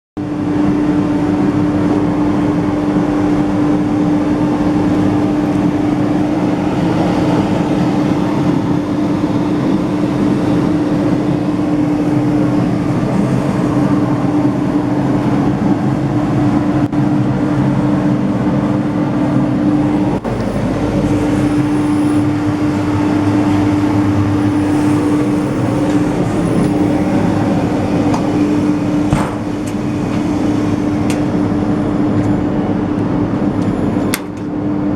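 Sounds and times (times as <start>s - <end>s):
sanding machine running: 19.3s - 34.6s.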